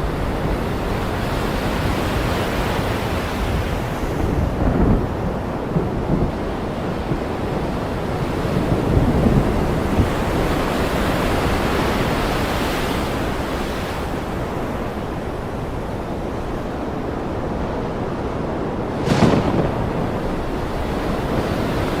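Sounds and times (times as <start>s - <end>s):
ocean wave washing in: 18.5s - 22.0s.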